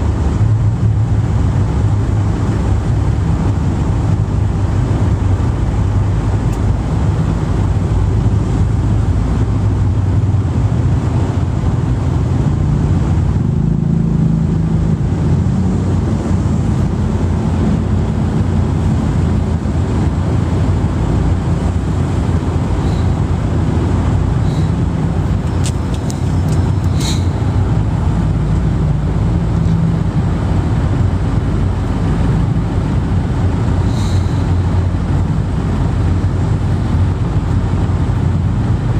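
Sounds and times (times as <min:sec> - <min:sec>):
vehicle engine rumble: 0:00.0 - 0:38.9.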